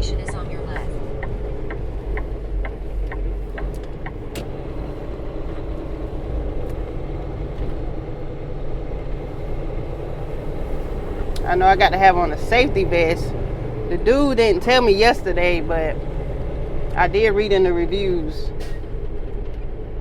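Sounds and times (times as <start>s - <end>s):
turn signal clicking: 0.0s - 4.6s
diesel truck engine running: 0.0s - 20.0s.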